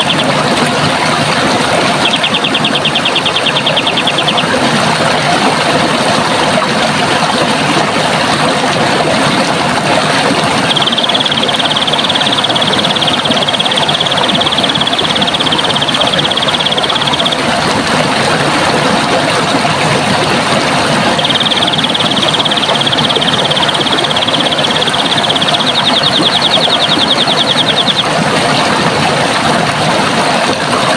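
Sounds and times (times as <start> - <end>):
running water rushing: 0.0 - 30.9
high rapid trill: 9.5 - 29.0.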